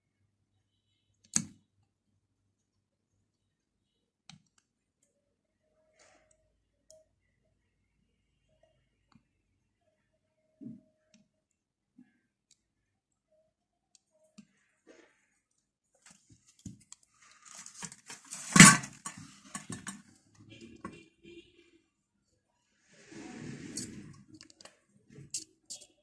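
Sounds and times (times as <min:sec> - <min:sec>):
hand tools clicking and knocking: 0:17.5 - 0:20.0.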